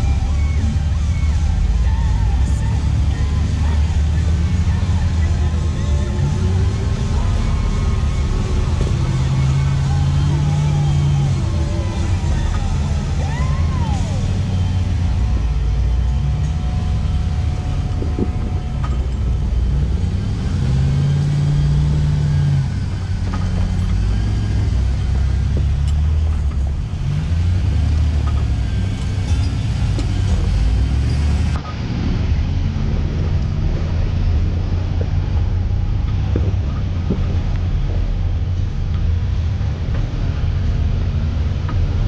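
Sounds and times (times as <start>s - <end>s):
engine running at low revs: 0.0s - 42.0s.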